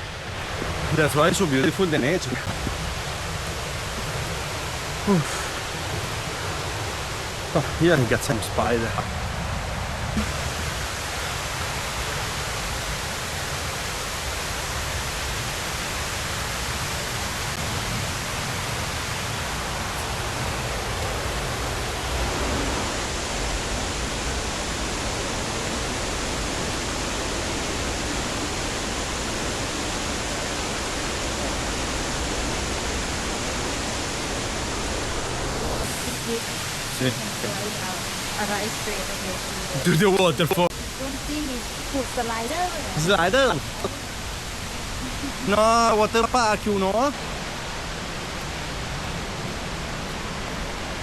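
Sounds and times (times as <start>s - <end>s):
waterfall roaring: 0.0s - 51.0s.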